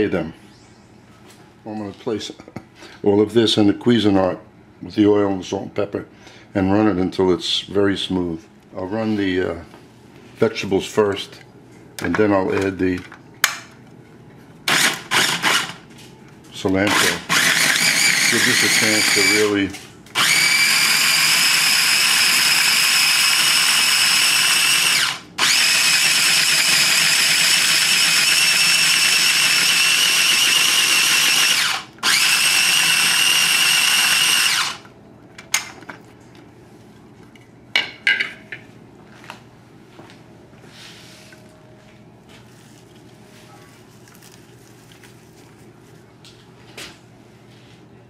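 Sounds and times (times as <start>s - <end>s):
food processor motor running: 14.7s - 15.8s, 16.8s - 19.6s, 20.2s - 34.9s.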